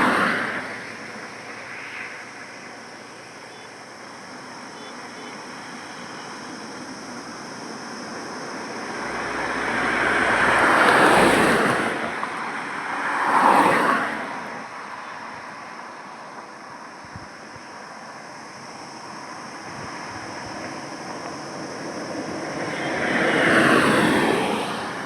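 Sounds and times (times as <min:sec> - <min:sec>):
highway road noise: 0:00.0 - 0:25.0
vehicles passing close by: 0:00.0 - 0:25.0.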